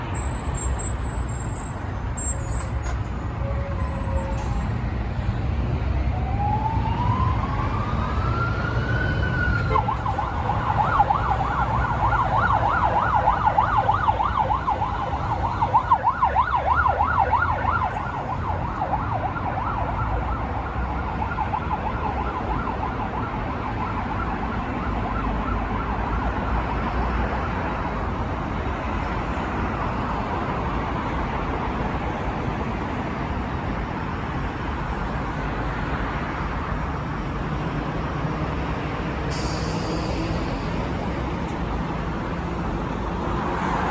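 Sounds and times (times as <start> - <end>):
road traffic rumble: 0.0 - 43.9
emergency siren yelping: 6.1 - 26.2.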